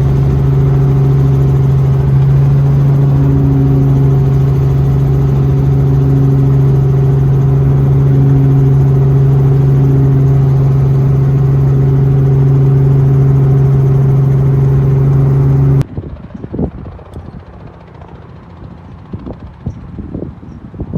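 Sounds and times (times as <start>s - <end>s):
helicopter engine and rotor: 0.0s - 16.3s.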